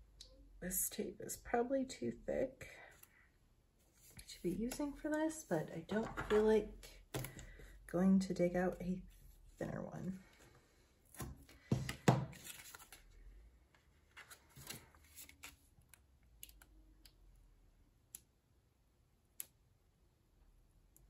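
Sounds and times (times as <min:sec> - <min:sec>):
paper rustling: 0:12.3 - 0:13.1, 0:14.0 - 0:15.7.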